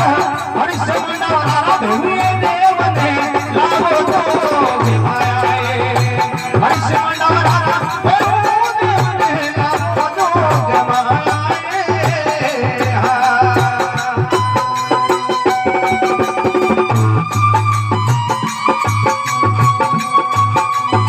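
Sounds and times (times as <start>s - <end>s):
jingling rattle percussion: 0.0s - 21.0s
regular drum beat: 0.0s - 21.0s
wavering melodic lead: 1.8s - 7.4s, 13.8s - 21.0s.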